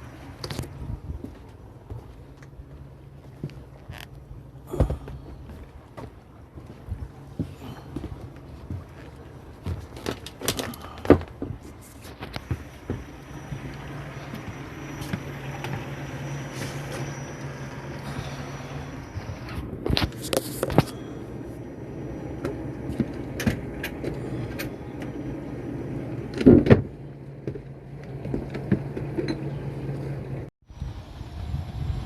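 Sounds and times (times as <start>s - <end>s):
motor humming: 11.9s - 26.4s.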